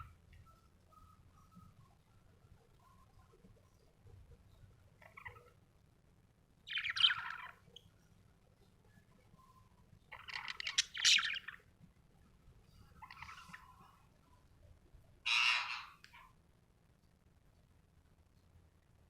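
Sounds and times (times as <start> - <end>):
budgerigar chirping and chattering: 5.0 - 5.5, 6.6 - 7.6, 10.1 - 11.6, 13.0 - 13.8, 15.3 - 16.2.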